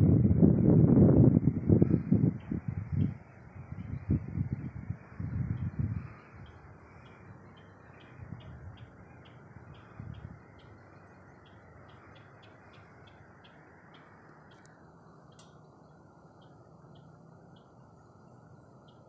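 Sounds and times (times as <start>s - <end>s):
bird chirping: 1.8s - 19.0s.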